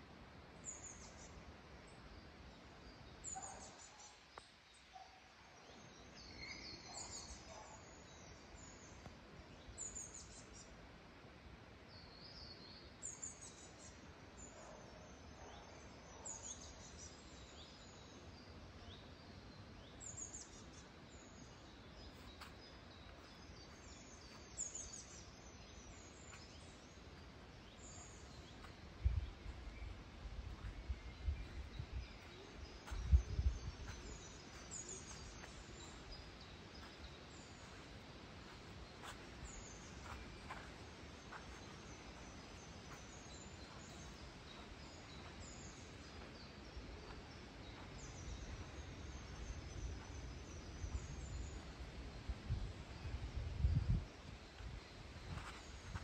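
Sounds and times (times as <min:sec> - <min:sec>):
faint steady hiss: 0:00.0 - 0:56.0
small birds chirping: 0:11.9 - 0:56.0.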